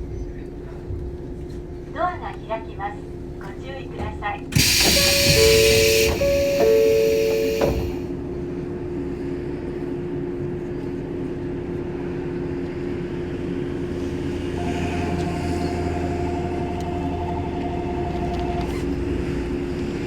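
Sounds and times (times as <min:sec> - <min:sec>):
train electrical hum: 0:00.0 - 0:20.0
pulsing high tone: 0:04.6 - 0:08.0, 0:14.6 - 0:18.8.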